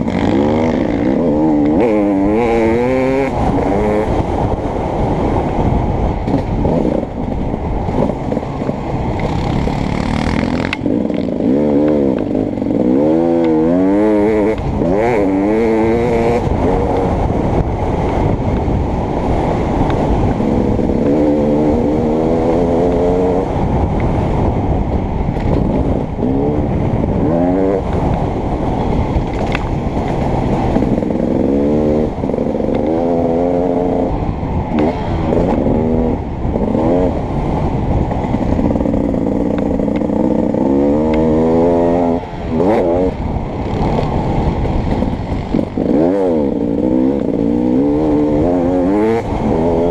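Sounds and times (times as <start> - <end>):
motocross engine revving: 0.0 - 4.2, 9.2 - 17.1, 20.4 - 23.5, 26.2 - 27.9, 30.7 - 37.3, 38.3 - 44.1, 44.8 - 49.9.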